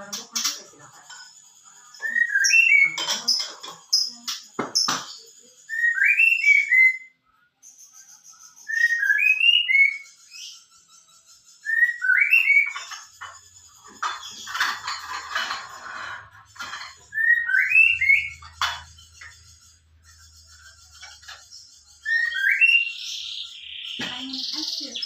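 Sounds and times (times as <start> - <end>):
thin high chirps: 0.0 - 25.0
bird singing whistled notes: 2.0 - 3.1, 5.1 - 13.4, 17.0 - 25.0.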